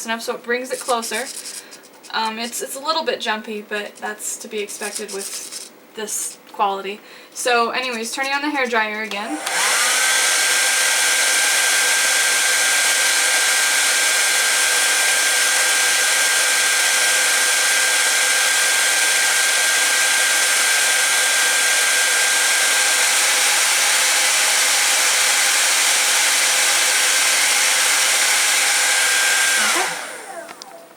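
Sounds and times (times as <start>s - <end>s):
hairdryer running: 9.1s - 30.9s.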